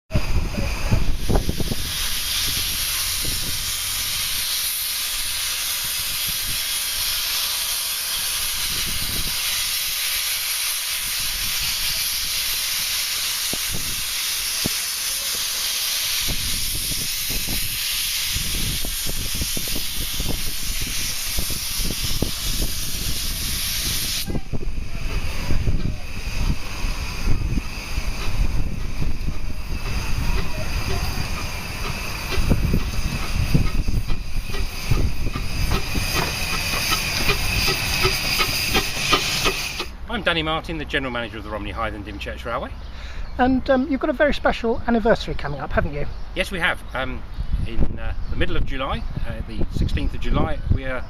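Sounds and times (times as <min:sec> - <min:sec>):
steam hissing: 0:00.1 - 0:40.5.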